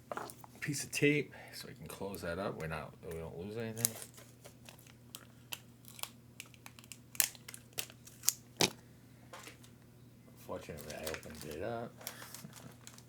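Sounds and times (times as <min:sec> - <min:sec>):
plastic bag crinkling: 0:03.8 - 0:08.8, 0:10.6 - 0:13.0
sticky tape being torn: 0:05.5 - 0:08.8.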